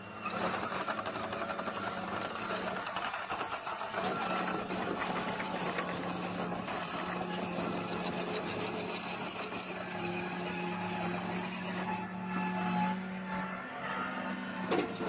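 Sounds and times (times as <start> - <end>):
heavy equipment engine running: 0.0 - 15.0.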